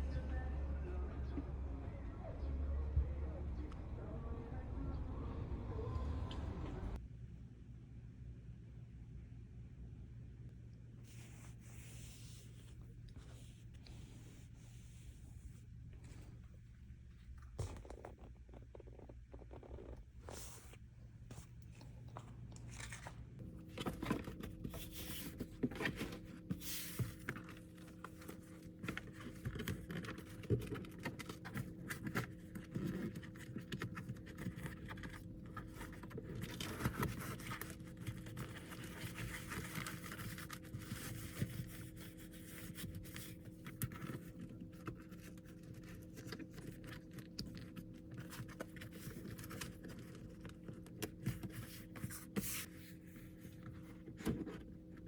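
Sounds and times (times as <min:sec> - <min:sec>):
steady low hum: 0:00.0 - 0:55.0
plastic packaging rustling and tearing: 0:22.6 - 0:52.4.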